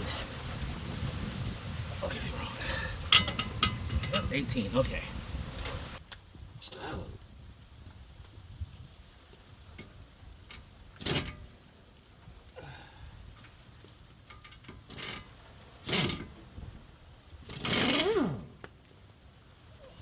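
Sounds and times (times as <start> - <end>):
hand tools clinking on metal: 3.1 - 4.3.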